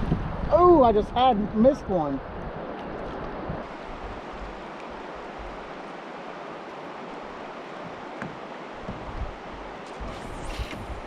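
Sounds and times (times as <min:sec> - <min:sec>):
wind buffeting microphone: 0:00.0 - 0:06.1, 0:07.0 - 0:11.0
river water flowing: 0:00.2 - 0:11.0.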